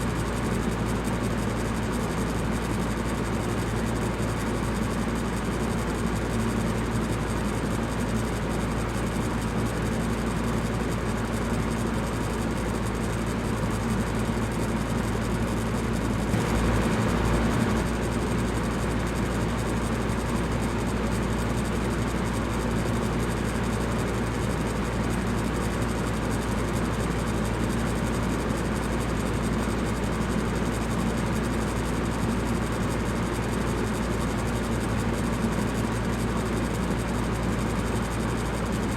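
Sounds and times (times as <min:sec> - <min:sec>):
electric fan running: 0:13.0 - 0:20.8.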